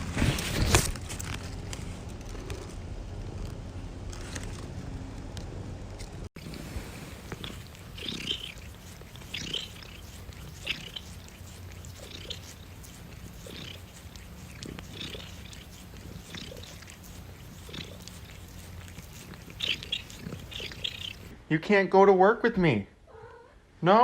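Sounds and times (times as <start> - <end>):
cat purring: 6.4 - 21.3.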